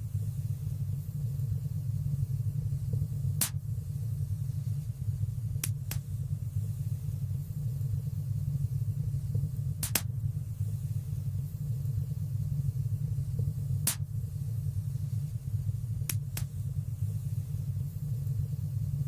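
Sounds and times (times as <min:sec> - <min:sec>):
wood fire crackling and popping: 0:09.8 - 0:10.1, 0:13.8 - 0:14.1.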